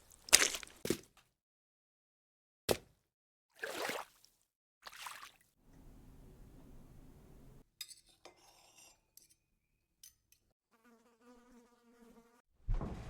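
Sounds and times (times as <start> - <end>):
flying insect buzzing: 10.7 - 12.4.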